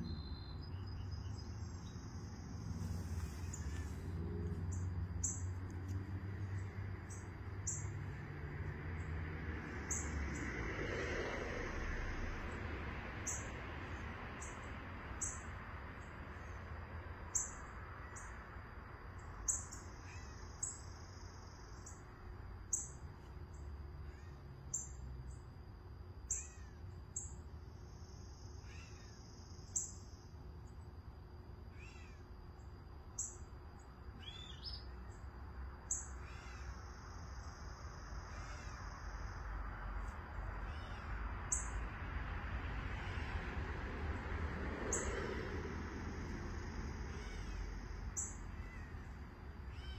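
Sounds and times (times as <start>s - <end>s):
lower slurred bird chirps: 0.0s - 5.8s, 6.4s - 8.3s, 9.8s - 10.5s, 14.4s - 16.6s, 17.3s - 18.4s, 19.2s - 22.1s, 22.7s - 25.4s, 26.3s - 30.8s, 31.8s - 39.1s, 40.4s - 41.8s, 46.2s - 49.9s
bird high calls: 34.2s - 35.1s.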